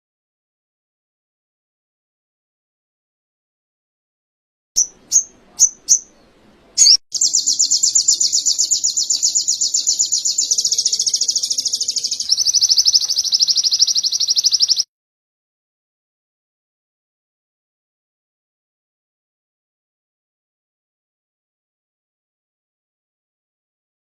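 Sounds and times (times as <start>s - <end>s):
bird chirps: 4.8s - 14.9s
bird high rolling trill: 6.8s - 14.8s.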